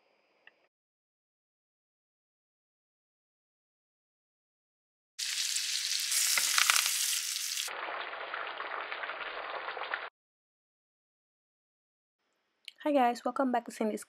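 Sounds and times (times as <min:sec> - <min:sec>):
food sizzling in a pan: 0:05.2 - 0:10.1.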